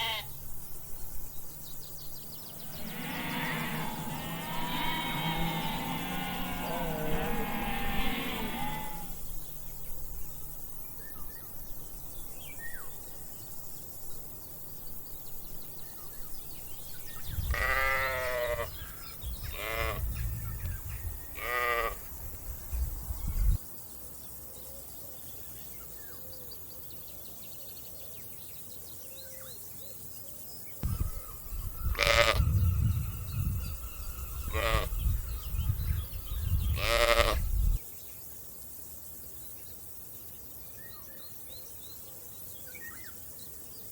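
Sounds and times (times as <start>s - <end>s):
sheep bleating: 0.0s - 0.4s, 2.6s - 9.2s, 17.5s - 18.8s, 19.5s - 20.0s, 21.4s - 22.1s, 31.8s - 32.5s, 34.4s - 35.1s, 36.7s - 37.5s
low rumble: 30.8s - 36.8s.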